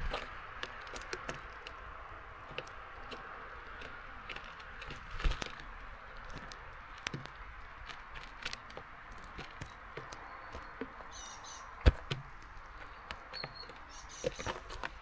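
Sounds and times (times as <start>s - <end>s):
birds tapping at seed feeder: 0.0s - 15.0s
high bird chirps: 10.3s - 11.8s, 13.3s - 14.6s.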